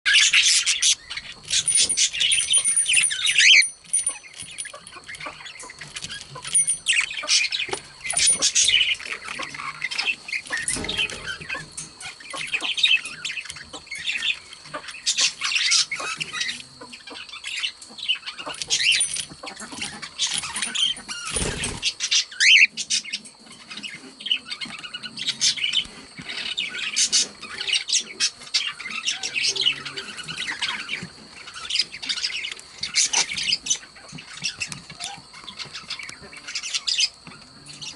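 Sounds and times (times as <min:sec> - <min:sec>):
budgerigars chattering: 0:00.1 - 0:37.9.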